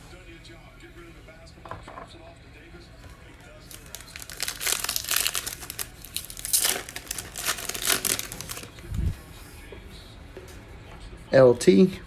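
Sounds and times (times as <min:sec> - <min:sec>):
plastic wrapper tearing and crinkling: 0:03.6 - 0:09.0.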